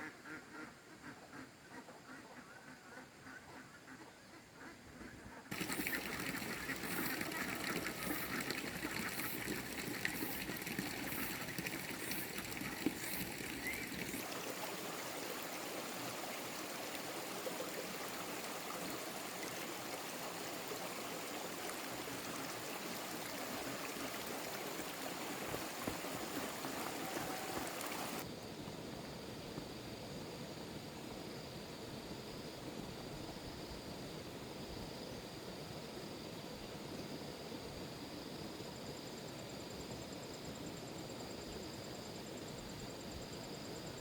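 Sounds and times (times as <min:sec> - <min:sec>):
running water: 0:05.5 - 0:28.3.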